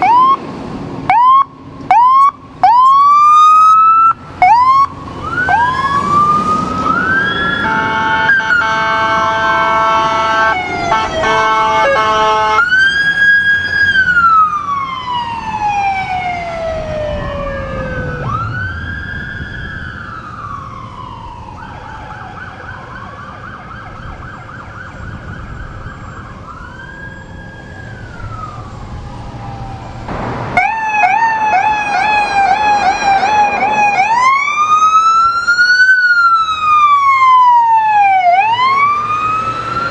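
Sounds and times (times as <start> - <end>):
emergency siren wailing: 0.0 - 39.9
vehicle horn blast: 7.6 - 12.6.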